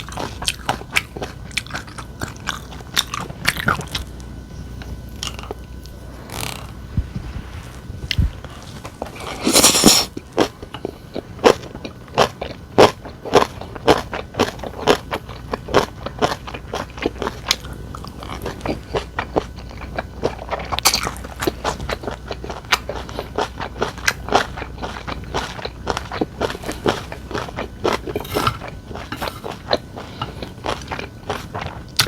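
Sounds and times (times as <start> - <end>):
chewing with wet crunches: 0.0 - 6.6, 8.9 - 32.0
loud crunching bite: 9.0 - 10.6.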